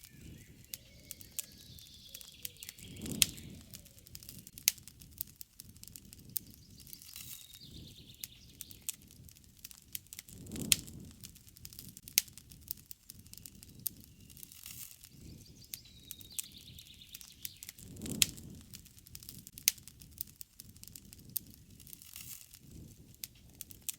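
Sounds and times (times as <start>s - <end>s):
bird chirping: 0.0s - 4.5s, 6.2s - 8.9s, 13.1s - 17.9s
campfire crackling and popping: 0.0s - 23.9s
low rush of flame: 0.0s - 23.9s.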